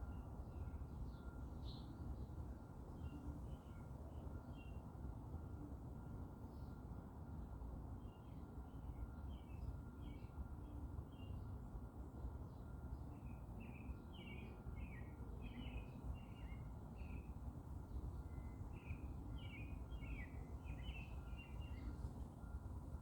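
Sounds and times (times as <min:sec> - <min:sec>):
small songbirds chirping: 0:12.5 - 0:22.2.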